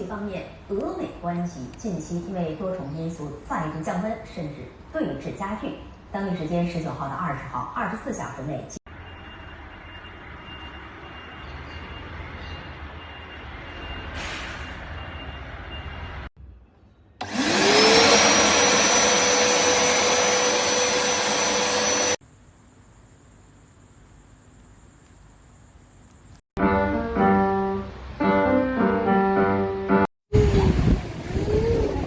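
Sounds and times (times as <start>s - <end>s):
vacuum cleaner motor whine: 17.2s - 22.2s.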